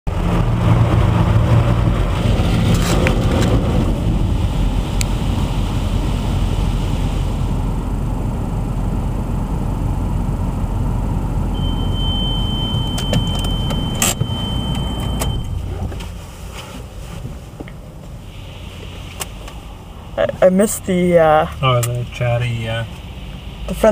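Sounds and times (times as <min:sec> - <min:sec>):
car wash machinery rumbling: 0:00.1 - 0:23.9
high steady tone: 0:11.5 - 0:16.1, 0:18.3 - 0:23.9.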